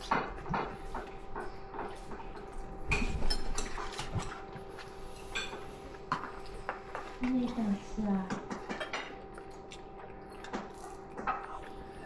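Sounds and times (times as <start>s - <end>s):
cutlery and dishes clinking: 0.0s - 4.5s, 8.3s - 11.6s.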